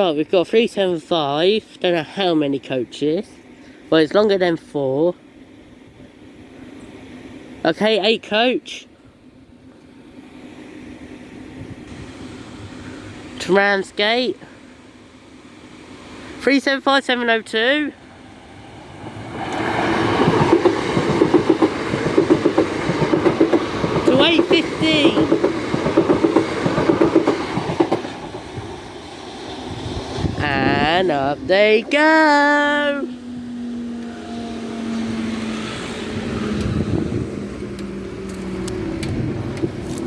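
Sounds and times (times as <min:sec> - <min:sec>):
electric train passing: 0:00.8 - 0:40.0
train wheels clattering: 0:19.4 - 0:28.7.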